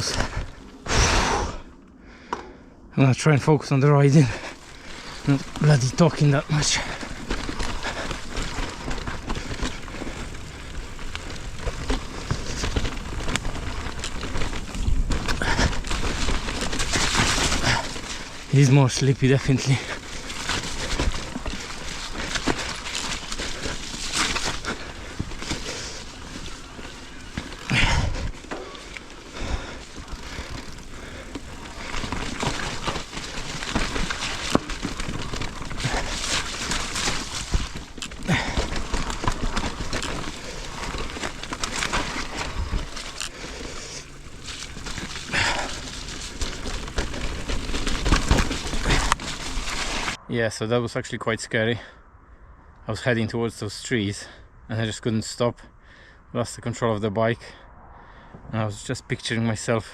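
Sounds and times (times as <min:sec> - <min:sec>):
bike tyre noise on dirt: 0:00.0 - 0:02.6, 0:03.2 - 0:51.9
bike knocking and rattling: 0:04.2 - 0:50.2.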